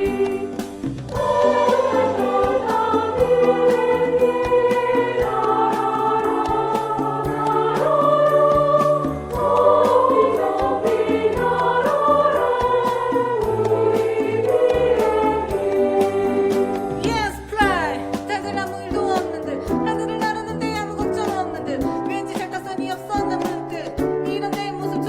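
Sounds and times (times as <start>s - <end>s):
women's choir singing: 0.0s - 17.9s
rhythmic accompaniment with bass: 0.0s - 25.0s.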